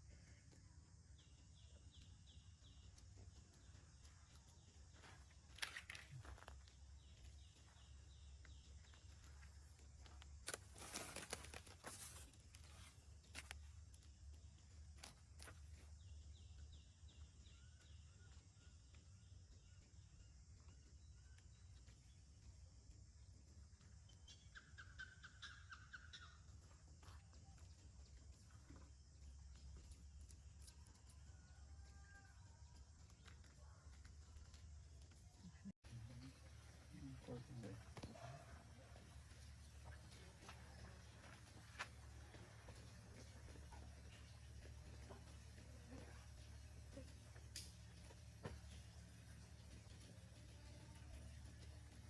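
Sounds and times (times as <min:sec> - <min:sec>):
rustling and scuffing: 0:08.8 - 0:13.6
faint animal call: 0:31.2 - 0:32.6.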